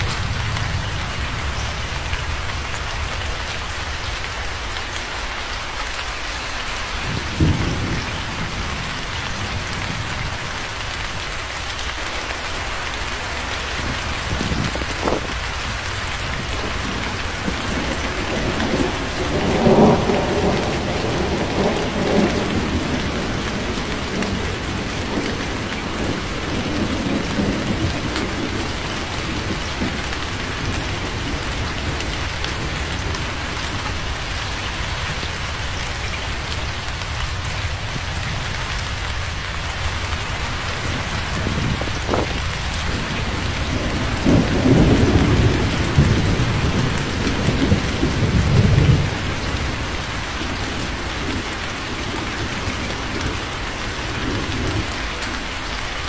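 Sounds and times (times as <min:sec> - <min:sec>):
heavy rain falling: 0:00.0 - 0:56.0
thunder: 0:07.0 - 0:11.2, 0:12.3 - 0:35.6, 0:40.2 - 0:55.0.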